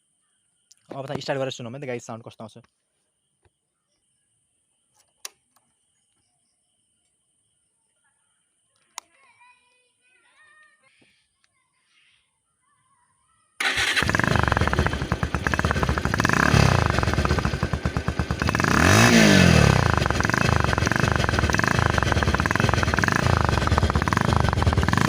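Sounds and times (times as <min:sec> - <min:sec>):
motorcycle engine revving: 0:13.6 - 0:25.0.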